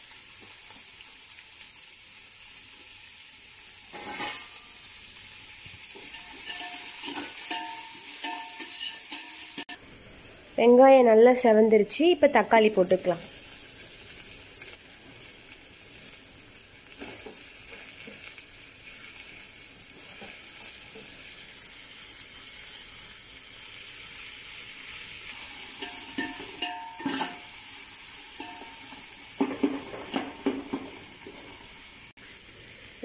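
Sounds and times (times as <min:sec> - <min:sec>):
onions sizzling in oil: 0:00.0 - 0:33.0
spoon scraping metal pot: 0:06.0 - 0:09.7, 0:25.8 - 0:27.4.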